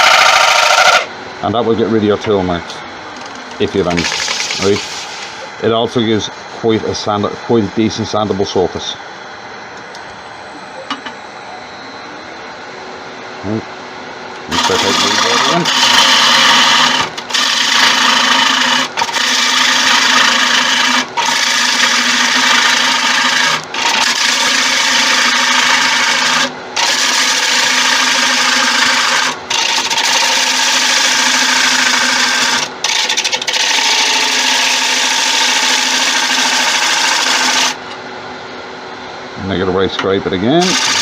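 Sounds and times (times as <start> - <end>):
tool cutting wood on lathe: 0.0 - 1.1, 3.6 - 5.4, 14.5 - 37.8, 40.6 - 41.0
lathe motor hum: 0.0 - 13.3, 14.1 - 38.6, 39.4 - 41.0.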